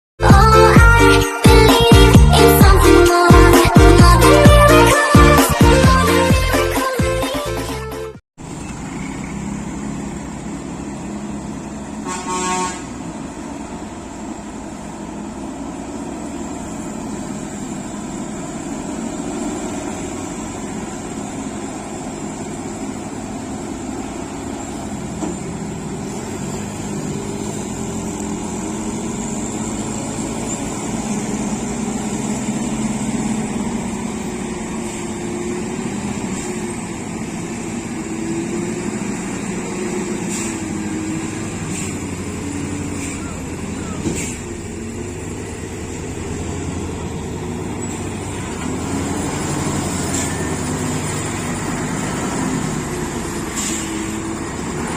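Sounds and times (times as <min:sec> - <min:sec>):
road traffic noise: 0:00.2 - 0:54.9
truck engines running: 0:00.2 - 0:54.9
vehicle horn honking: 0:12.0 - 0:13.0.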